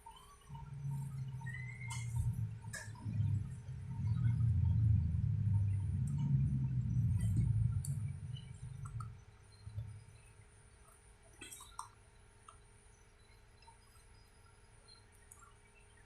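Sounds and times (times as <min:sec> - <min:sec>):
electric bus rumbling: 0:00.0 - 0:10.7
faint clicks: 0:00.0 - 0:16.0.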